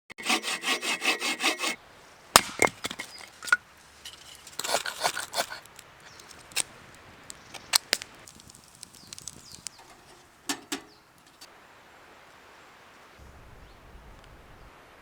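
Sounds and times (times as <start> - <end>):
saw cutting wood: 0.1 - 1.8, 2.4 - 6.3
wood cracking and knocking: 2.4 - 6.7, 7.3 - 11.5.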